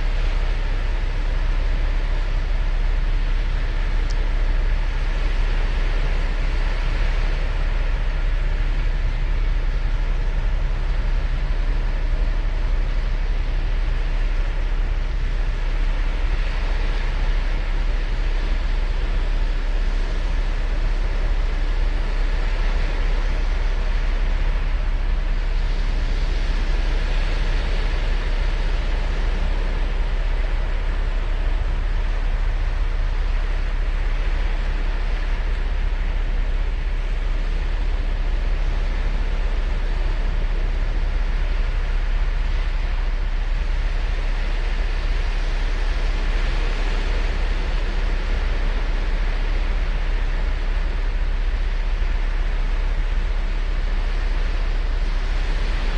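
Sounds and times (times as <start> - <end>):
deep surf rumble: 0.0 - 55.9
waves washing on beach: 0.0 - 55.9.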